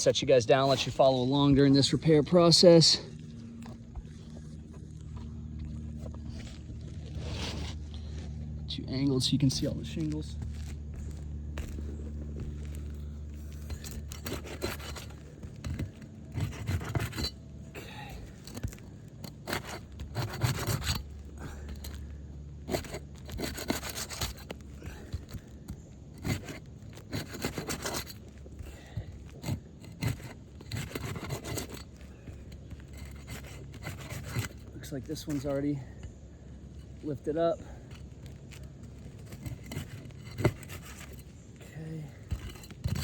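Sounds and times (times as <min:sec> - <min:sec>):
steady low hum: 0:00.0 - 0:43.0
tool scraping roof shingles: 0:09.1 - 0:43.0.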